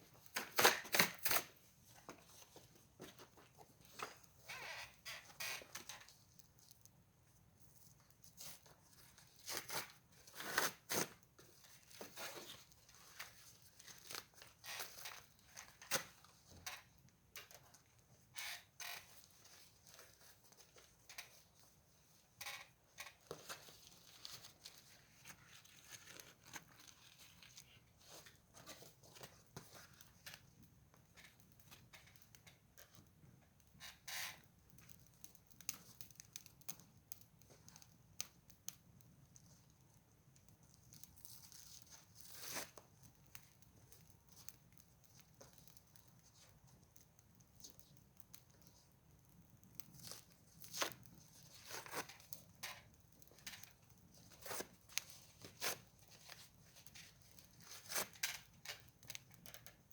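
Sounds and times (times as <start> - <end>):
wood fire crackling and popping: 29.4 - 59.9.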